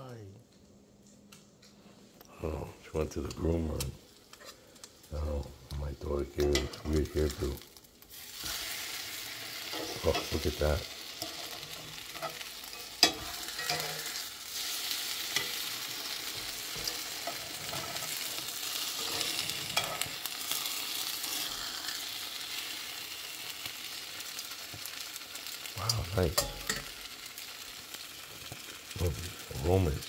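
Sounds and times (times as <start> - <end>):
bread sizzling in butter: 6.0 - 30.0
metal tongs clicking on pan: 12.2 - 14.0, 19.0 - 20.1, 25.9 - 27.0.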